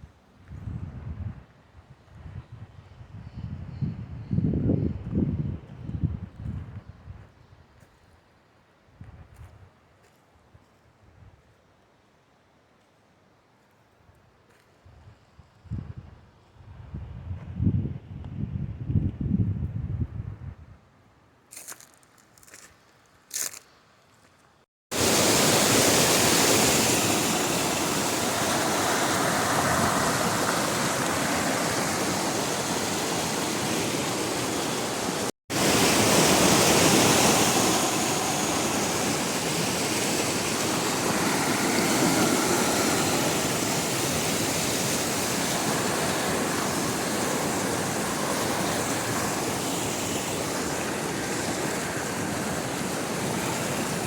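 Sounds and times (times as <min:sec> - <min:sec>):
rushing flowing water: 0:24.9 - 0:54.0.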